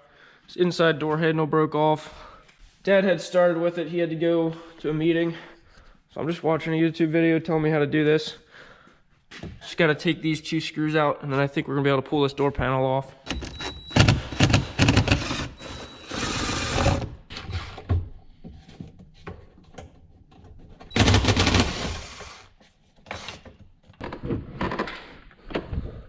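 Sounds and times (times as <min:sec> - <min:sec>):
power screwdriver running: 0:13.3 - 0:17.1, 0:20.9 - 0:22.4.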